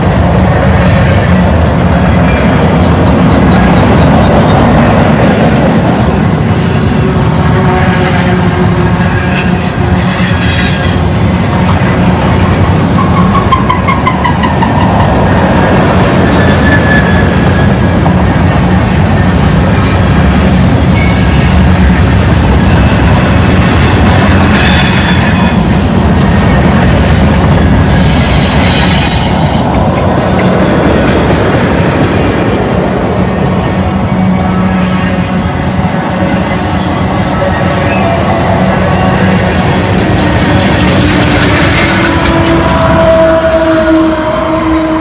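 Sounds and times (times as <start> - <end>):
train wheels rumbling on rails: 0.0 - 45.0
high-pitched wheel squeal: 9.0 - 11.3, 11.9 - 17.9, 22.6 - 25.8, 26.7 - 29.7.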